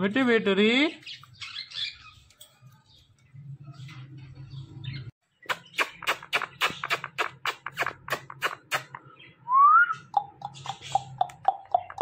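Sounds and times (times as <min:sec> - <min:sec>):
parrot clicking: 0:10.2 - 0:12.0.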